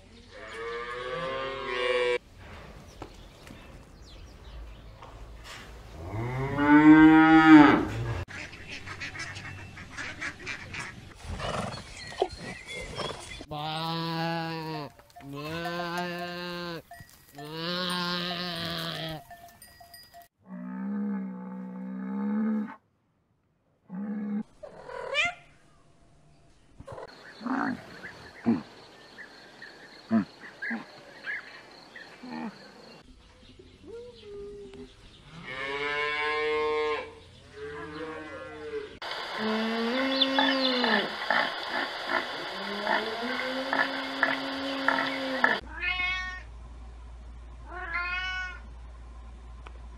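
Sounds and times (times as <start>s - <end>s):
wavering bleats: 13.5s - 19.3s.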